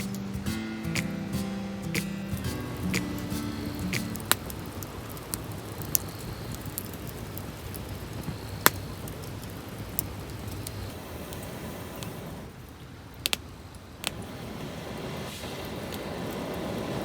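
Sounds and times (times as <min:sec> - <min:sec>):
sharp pops from fire: 0:00.0 - 0:04.5
campfire crackling: 0:00.0 - 0:12.4, 0:14.0 - 0:17.0.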